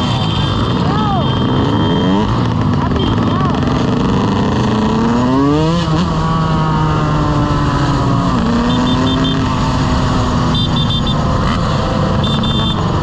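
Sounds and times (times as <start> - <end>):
short high beeps: 0.0 - 3.6, 8.4 - 9.5
motorcycle engine revving: 0.0 - 13.0.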